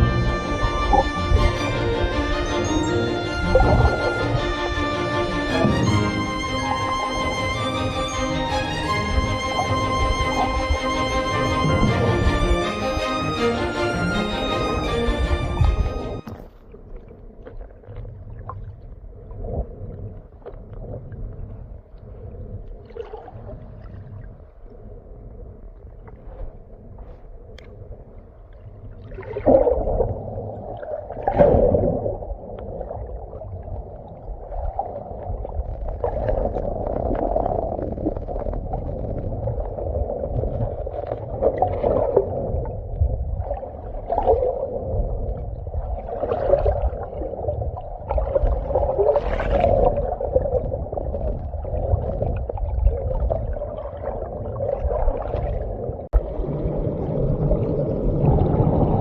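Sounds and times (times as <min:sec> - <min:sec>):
muffled stream water gurgling: 0:00.0 - 0:59.0.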